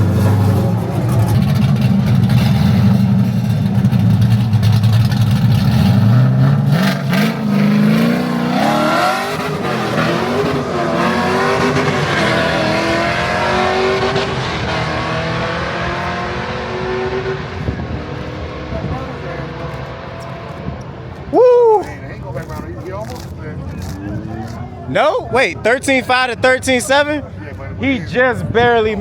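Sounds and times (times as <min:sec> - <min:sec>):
car engine revving through gears: 0:00.0 - 0:20.9.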